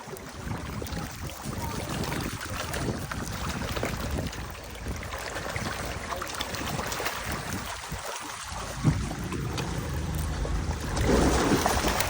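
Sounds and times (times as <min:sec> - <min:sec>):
wind on microphone: 0:00.0 - 0:12.0
low rumble: 0:08.6 - 0:12.0.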